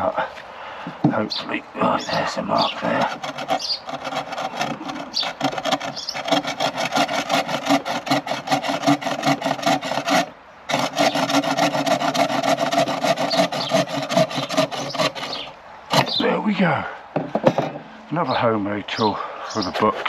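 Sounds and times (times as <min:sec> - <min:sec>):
hand saw sawing wood: 0:02.5 - 0:16.2.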